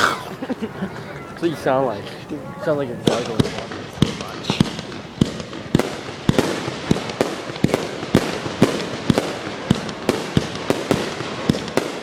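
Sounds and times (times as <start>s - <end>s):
fireworks bangs with echo: 3.0s - 12.0s.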